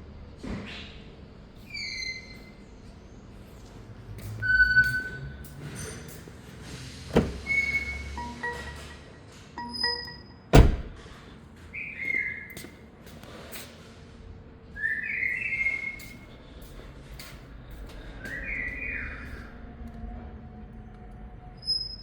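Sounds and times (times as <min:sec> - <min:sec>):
loud thump: 0:07.2 - 0:07.5, 0:10.6 - 0:11.0.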